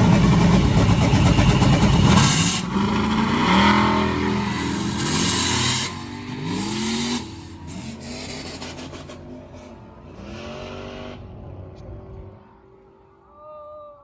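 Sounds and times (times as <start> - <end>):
loud rushing noise: 0.0 - 9.1
truck engine revving: 0.0 - 12.3.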